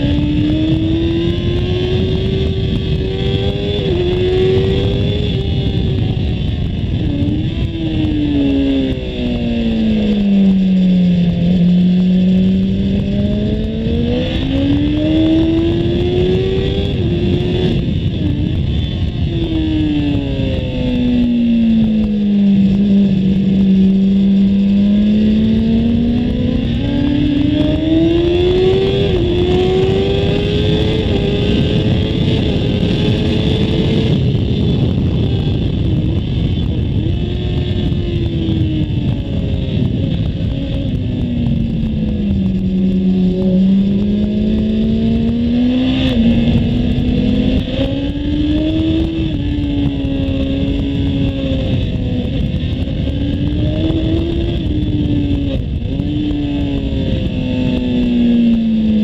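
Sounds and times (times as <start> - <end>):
motorcycle engine at speed: 0.0 - 59.0
wind on microphone: 0.0 - 59.0.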